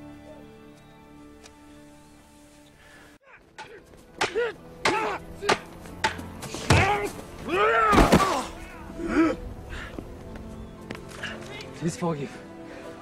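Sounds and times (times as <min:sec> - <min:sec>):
people shouting and grunting: 0:03.2 - 0:05.8, 0:06.5 - 0:09.7.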